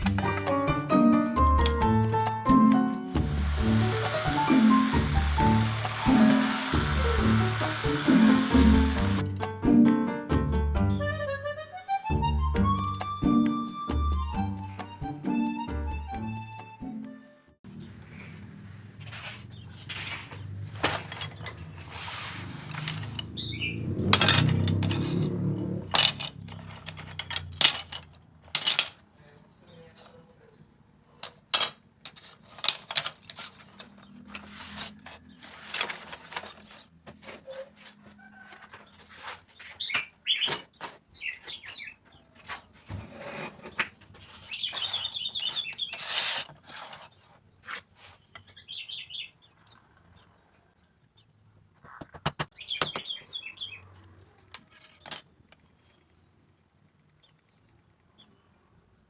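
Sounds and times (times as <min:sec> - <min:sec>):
small birds chirping and trilling: 0:17.7 - 0:18.4, 0:19.1 - 0:25.1, 0:26.4 - 0:28.2, 0:29.5 - 0:30.8, 0:33.2 - 0:55.2, 0:55.9 - 0:59.0.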